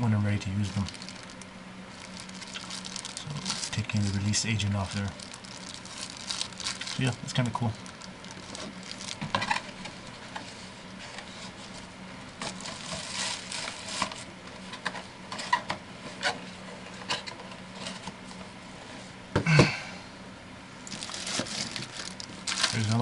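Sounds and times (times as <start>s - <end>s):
packaging rustling: 0.6s - 10.6s, 11.3s - 14.2s, 20.9s - 23.0s.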